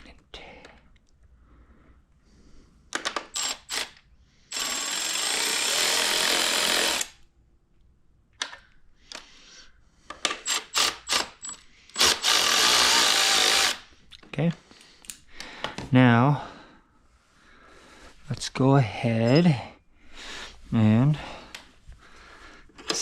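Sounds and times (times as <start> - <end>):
tool and bolts clicking: 2.9 - 4.0, 22.7 - 23.0
power drill driving bolts: 3.0 - 7.2, 10.1 - 13.8.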